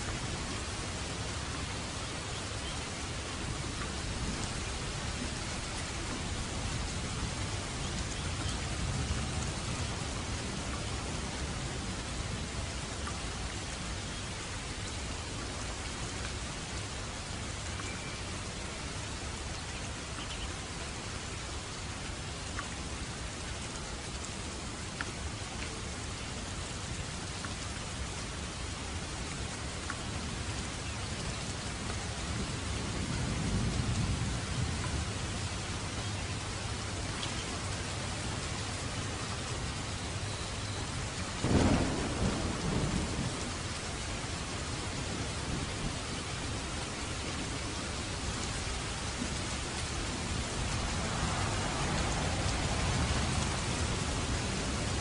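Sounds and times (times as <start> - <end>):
steady rainfall: 0.0 - 55.0
thunder rumble: 41.4 - 46.6, 49.2 - 55.0.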